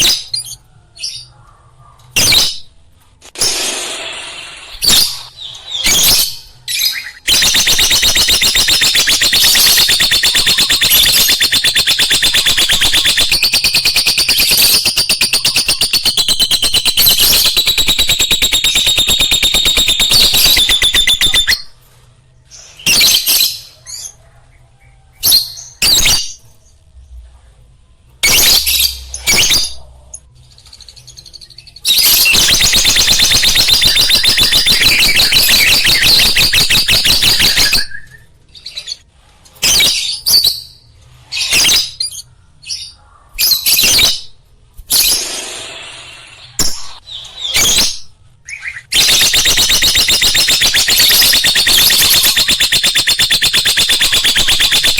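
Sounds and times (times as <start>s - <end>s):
lovebird chirping: 4.6s - 21.8s, 30.6s - 39.0s, 46.4s - 54.9s.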